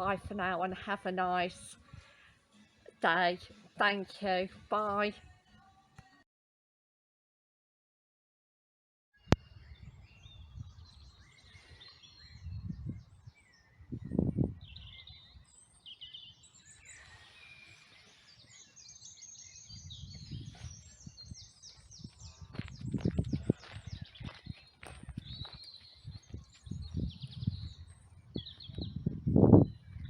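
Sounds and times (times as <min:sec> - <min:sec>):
wild birds singing and chirping: 0:09.2 - 0:30.0.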